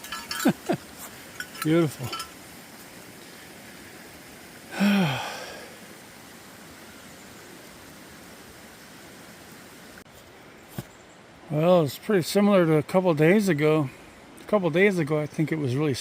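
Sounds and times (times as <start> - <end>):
light rain hissing: 0.0 - 16.0
man sighing: 4.7 - 5.8.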